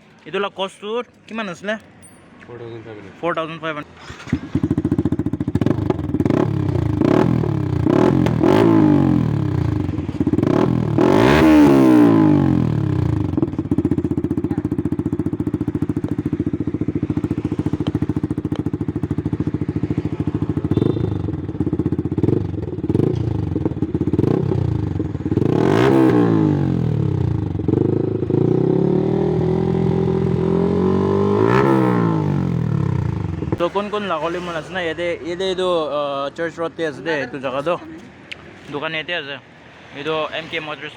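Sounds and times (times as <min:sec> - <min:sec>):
motorcycle engine revving: 0:04.0 - 0:34.6.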